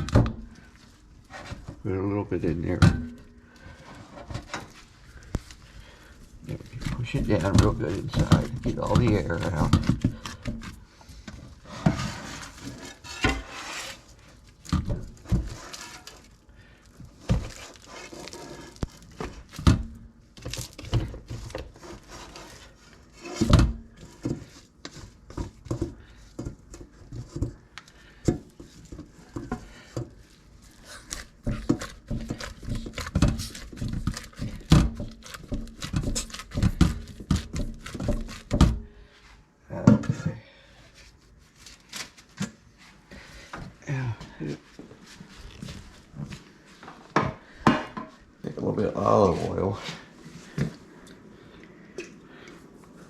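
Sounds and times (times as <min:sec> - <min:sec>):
meat packed into sausage stuffer: 0:03.5 - 0:38.9.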